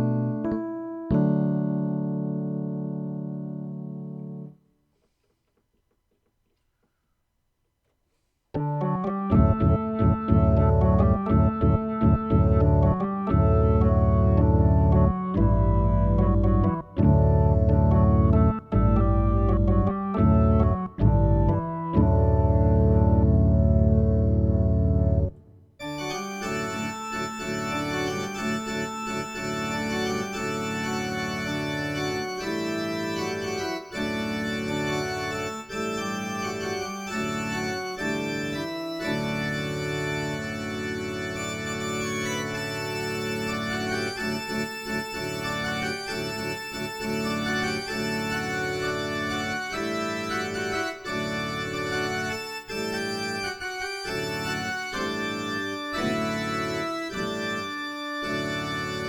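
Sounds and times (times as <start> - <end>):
keyboard organ chords: 0.0 - 4.6, 8.6 - 59.0.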